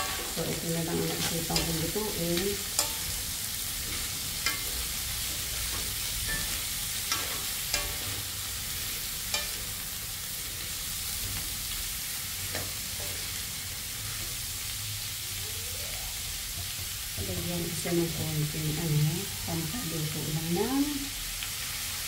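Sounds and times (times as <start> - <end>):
wooden spatula scraping a wok: 0.0 - 11.4
food sizzling in oil: 0.0 - 22.0.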